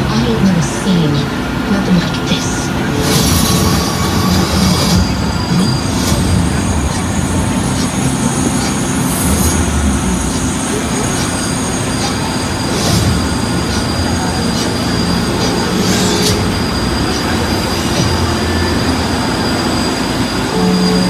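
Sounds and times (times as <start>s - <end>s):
high whining tones: 0.0s - 21.0s
tram rumbling: 0.0s - 21.0s.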